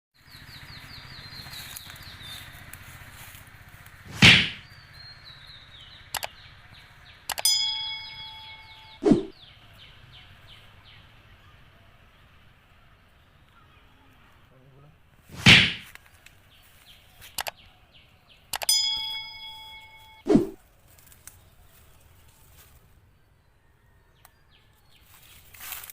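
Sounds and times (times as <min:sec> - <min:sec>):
short dull thud: 0:04.1 - 0:04.6, 0:15.3 - 0:15.9
swish: 0:04.1 - 0:04.6, 0:09.0 - 0:09.3, 0:15.3 - 0:15.8, 0:20.3 - 0:20.6
metal object struck ringing: 0:07.4 - 0:09.0, 0:18.7 - 0:20.3.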